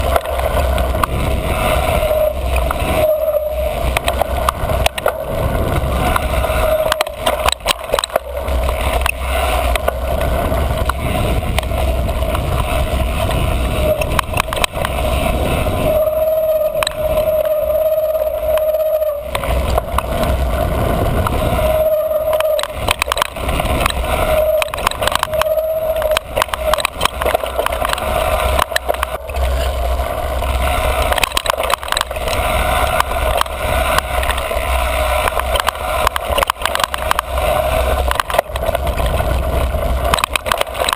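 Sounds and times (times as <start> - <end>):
bike brake squealing: 0.0 - 40.9
bike rattling over bumpy trail: 0.0 - 40.9
wind rumble on microphone: 0.0 - 40.9.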